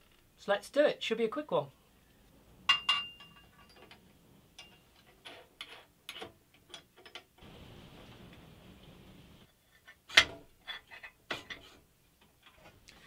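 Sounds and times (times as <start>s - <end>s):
faint scratchy hiss: 0.0s - 13.0s.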